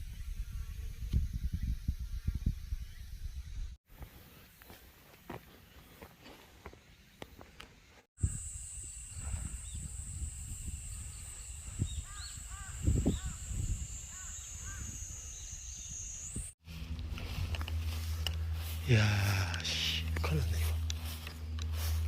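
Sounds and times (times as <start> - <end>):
high-pitched whine: 8.2 - 22.0
low rumble on microphone: 16.6 - 22.0.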